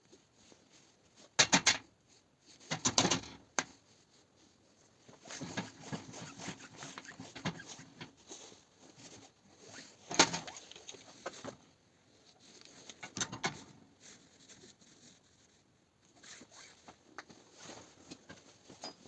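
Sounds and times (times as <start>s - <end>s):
light scratching and tapping: 2.1s - 19.0s.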